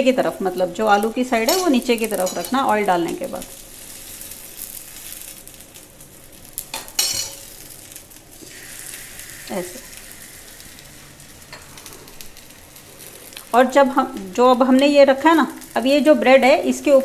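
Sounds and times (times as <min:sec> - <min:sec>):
bread sizzling on a griddle: 0:00.2 - 0:17.0
metal spoon clink: 0:01.4 - 0:02.5.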